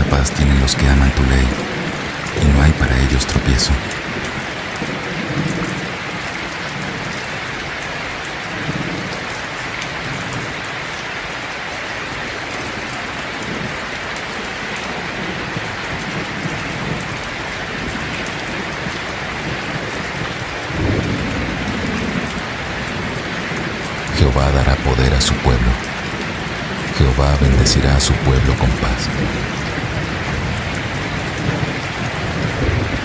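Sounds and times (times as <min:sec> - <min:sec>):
steady rain hiss: 0:00.0 - 0:33.0
distant thunder rumble: 0:19.4 - 0:27.0, 0:28.6 - 0:33.0.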